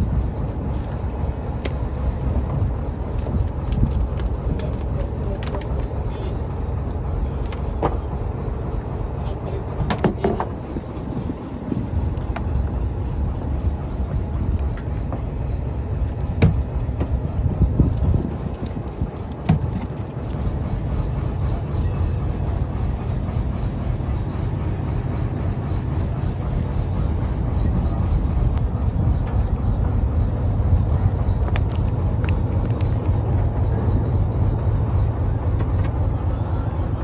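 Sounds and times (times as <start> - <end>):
boat engine rumbling: 0.0 - 37.0.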